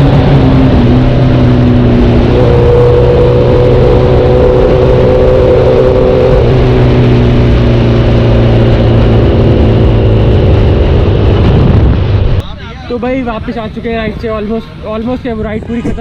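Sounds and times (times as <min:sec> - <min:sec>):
motorcycle engine running: 0:00.0 - 0:12.4
wind rush: 0:00.0 - 0:16.0.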